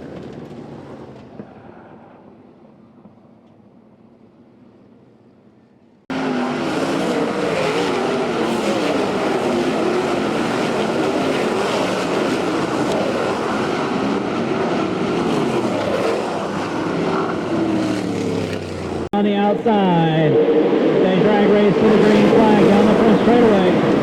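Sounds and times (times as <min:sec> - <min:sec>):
race car engines: 0:00.0 - 0:02.9, 0:06.1 - 0:24.0.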